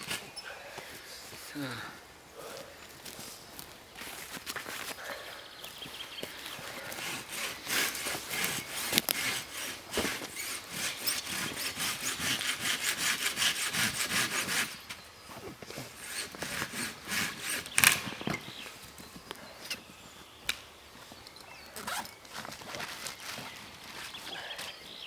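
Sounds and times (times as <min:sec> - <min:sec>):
hand saw cutting wood: 0:06.5 - 0:15.0, 0:15.6 - 0:18.2.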